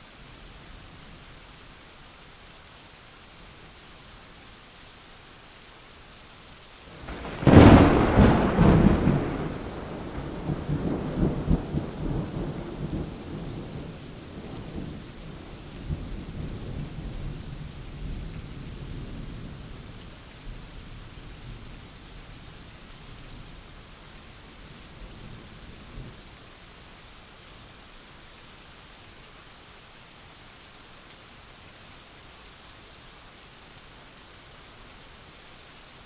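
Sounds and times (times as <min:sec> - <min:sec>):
rain hissing: 0:00.0 - 0:36.0
thunder rumbling: 0:06.9 - 0:15.1.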